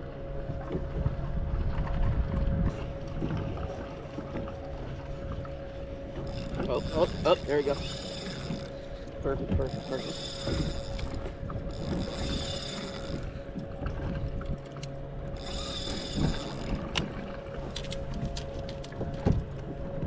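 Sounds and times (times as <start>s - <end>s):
faint steady hum: 0.0s - 20.0s
fishing reel ratcheting and clicking: 6.2s - 8.7s, 9.7s - 13.3s, 15.4s - 16.7s
high buzzing: 6.2s - 8.9s, 9.7s - 13.2s, 15.3s - 16.7s.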